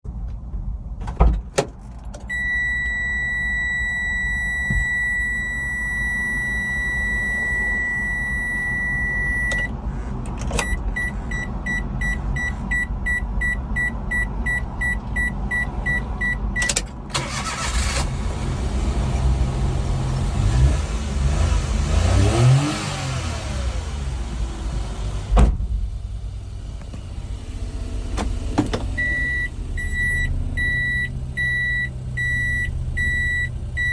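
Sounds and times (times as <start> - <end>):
engine revving and idling: 17.2 - 33.9.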